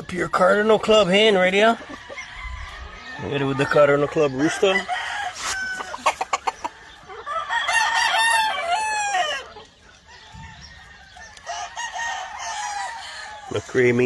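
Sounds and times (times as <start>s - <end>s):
chickens clucking: 0.0s - 14.0s
rooster crowing: 4.4s - 6.1s, 7.3s - 9.5s, 10.2s - 13.4s.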